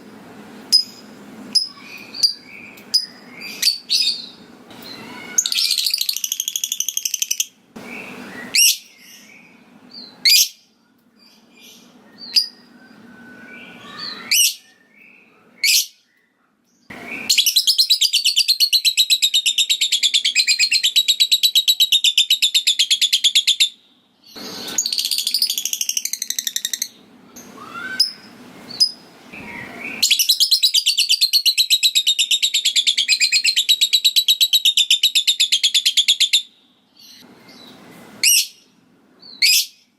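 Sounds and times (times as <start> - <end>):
lovebird chirps and calls: 0.7 - 10.6, 11.2 - 16.2, 16.9 - 39.9.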